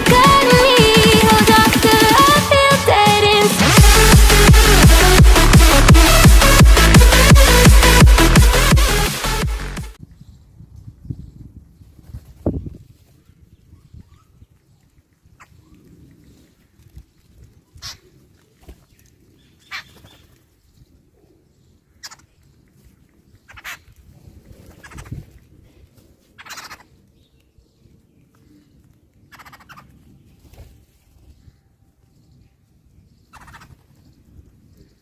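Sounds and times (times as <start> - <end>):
poultry calling: 26.4 - 27.0, 29.3 - 30.0.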